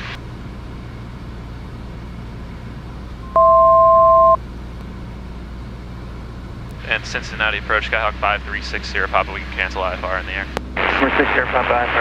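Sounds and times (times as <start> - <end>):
aircraft engine drone: 0.0 - 12.0
electronic two-note alert tone: 3.3 - 4.4.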